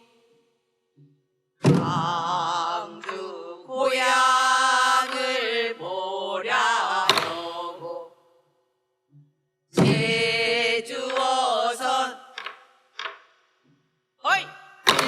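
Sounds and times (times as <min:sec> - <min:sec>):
solo voice singing with vibrato: 0:01.7 - 0:08.1, 0:09.8 - 0:12.3.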